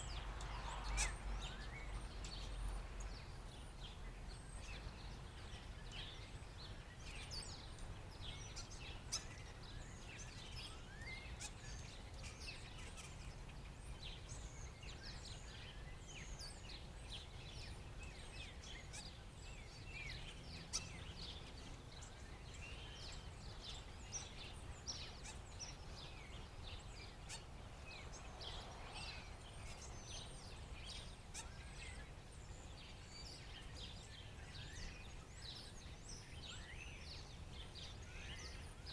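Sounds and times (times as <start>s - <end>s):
birds chirping and squeaking: 12.2s - 13.3s.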